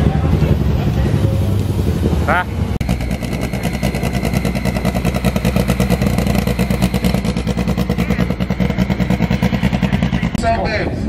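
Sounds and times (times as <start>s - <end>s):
vehicle engine with pulsing exhaust: 0.0s - 11.0s.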